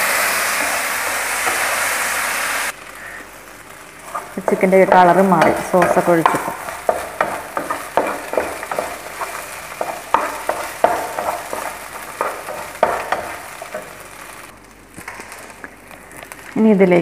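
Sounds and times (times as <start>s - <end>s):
chicken sizzling in a frying pan: 0.0s - 16.8s
wooden spatula scraping a pan: 4.0s - 14.4s.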